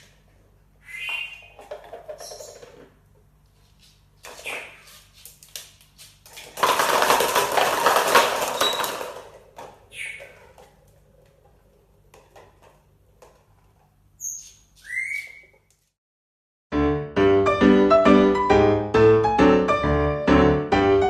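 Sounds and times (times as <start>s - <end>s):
parrot whistled calls: 0.8s - 1.6s, 14.2s - 15.6s
parrot flapping wings: 6.3s - 9.4s.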